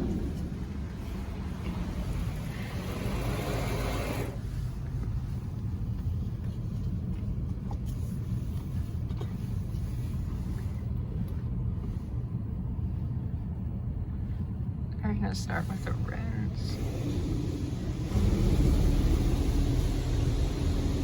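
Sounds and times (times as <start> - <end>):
car wash water spray hissing: 0.0 - 5.4, 15.6 - 21.0
steady low rumble: 0.0 - 21.0.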